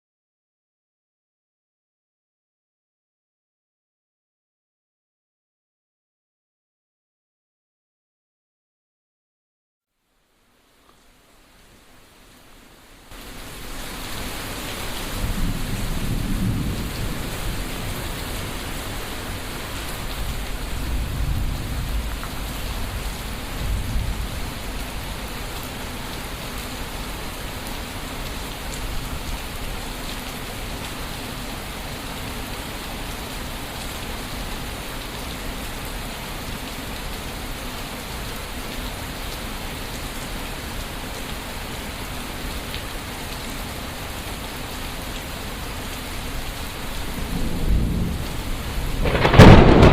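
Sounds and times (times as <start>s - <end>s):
heavy rain: 9.9s - 49.9s
thunder rolling: 15.2s - 18.0s, 47.2s - 49.9s.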